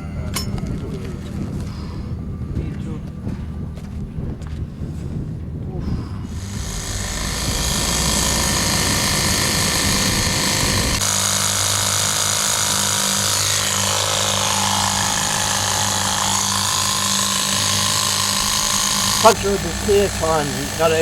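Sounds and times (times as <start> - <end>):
motor running: 6.0 - 21.0.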